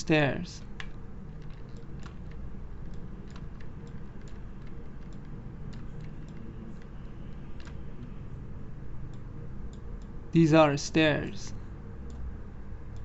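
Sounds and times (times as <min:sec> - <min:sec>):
computer keys clicking: 0:00.6 - 0:08.2, 0:12.0 - 0:12.3.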